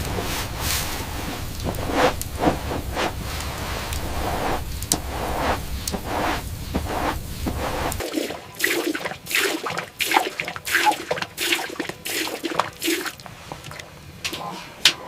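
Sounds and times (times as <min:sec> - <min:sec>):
low rumble: 0:00.0 - 0:08.0.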